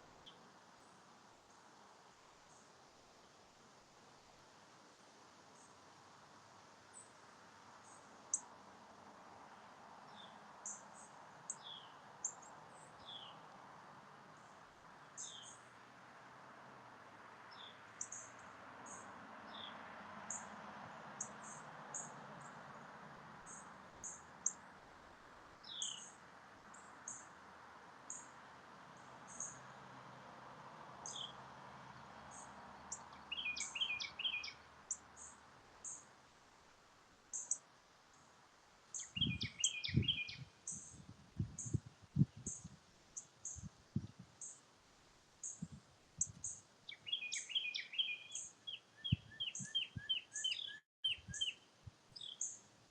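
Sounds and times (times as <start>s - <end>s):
soft steady hiss: 0.0s - 52.9s
small birds chirping: 10.0s - 13.5s, 14.3s - 15.7s, 17.5s - 20.5s, 23.4s - 24.6s, 25.6s - 27.4s, 28.1s - 28.4s, 29.0s - 29.8s, 31.0s - 36.2s, 37.3s - 38.3s, 38.9s - 43.7s, 44.4s - 44.6s, 45.4s - 52.9s
bird trill: 32.9s - 34.6s, 39.0s - 40.9s, 46.4s - 51.6s.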